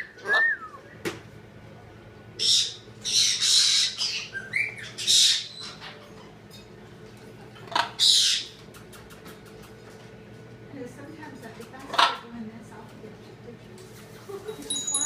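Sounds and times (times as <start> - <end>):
pet birds squawking: 2.4 - 6.5, 7.6 - 9.7, 11.8 - 12.3.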